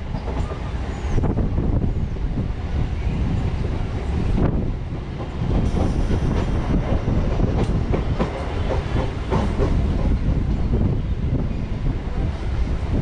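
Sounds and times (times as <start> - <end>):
wheels rumbling on rail: 0.0 - 13.0
rushing air: 0.7 - 13.0
wheels clacking over rail joints: 5.1 - 10.8.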